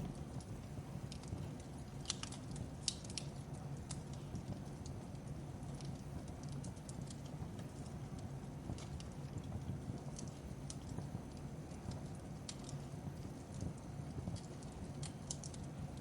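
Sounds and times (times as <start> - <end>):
fireplace crackling: 0.0 - 16.0.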